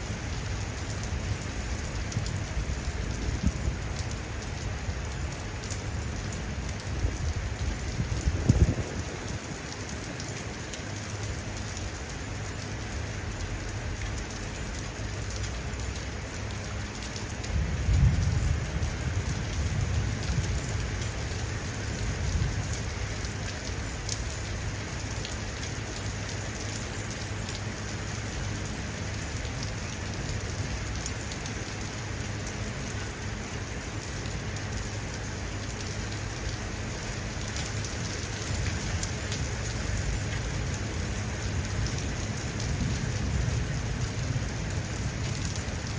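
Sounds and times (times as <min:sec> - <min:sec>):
steady rain falling: 0:00.0 - 0:45.9
thunder rumbling: 0:08.0 - 0:09.4, 0:17.5 - 0:20.9.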